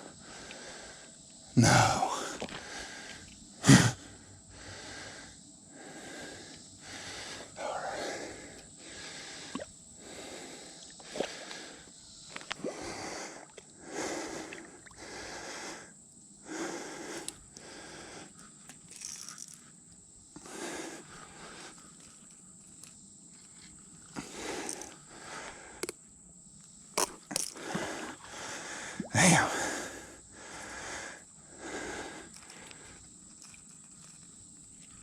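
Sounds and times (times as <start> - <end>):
man panting heavily: 0.1 - 11.9, 12.8 - 18.4, 27.6 - 33.0.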